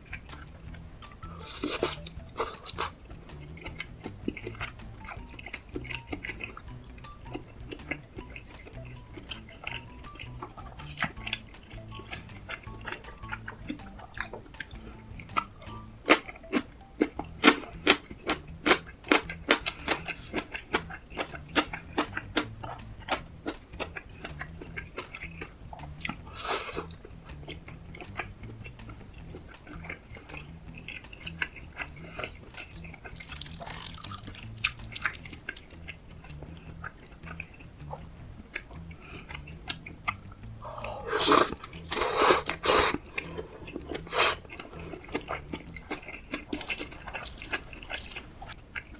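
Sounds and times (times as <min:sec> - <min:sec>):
person chewing food: 0:00.0 - 0:48.9
loud bite or scrape: 0:41.0 - 0:44.6.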